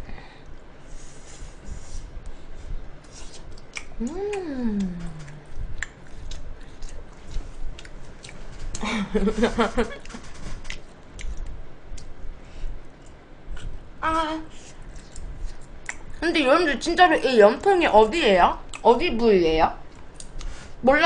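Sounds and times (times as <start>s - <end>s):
closed-mouth humming: 0.0s - 16.8s
woman chewing meat: 3.1s - 8.8s.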